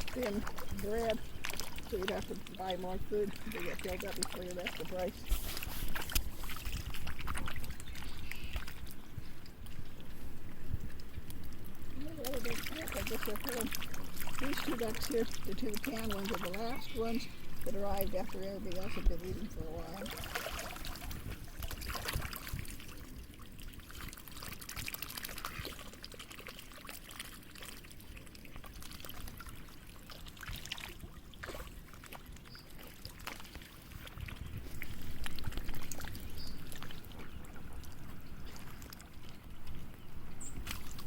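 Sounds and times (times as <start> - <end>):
water trickling and lapping: 0.0 - 41.0.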